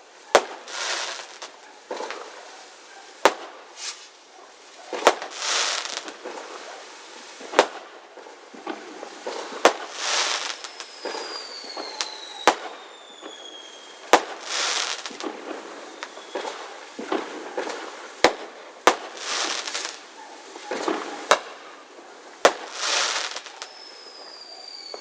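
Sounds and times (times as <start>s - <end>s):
fireworks bangs: 0.0s - 2.5s, 3.2s - 4.2s, 4.9s - 6.8s, 7.4s - 25.0s
fireworks crackling hiss: 0.0s - 25.0s
falling firework whistles: 0.3s - 2.3s, 3.7s - 4.2s, 5.0s - 6.5s, 9.2s - 17.9s, 18.8s - 21.6s, 22.4s - 25.0s.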